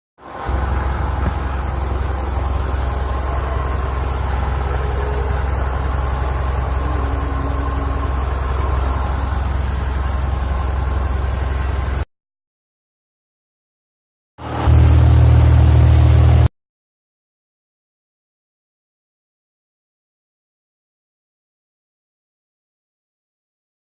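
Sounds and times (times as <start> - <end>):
airplane piston engine droning: 0.3 - 12.0.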